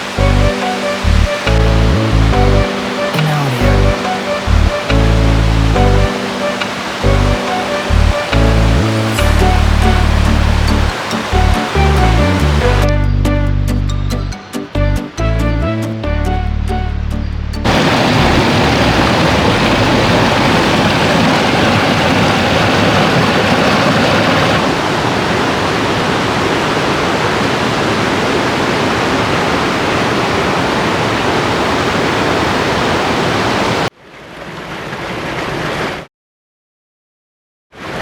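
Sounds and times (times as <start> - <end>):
loud rushing noise with deep rumble: 17.6 - 24.6.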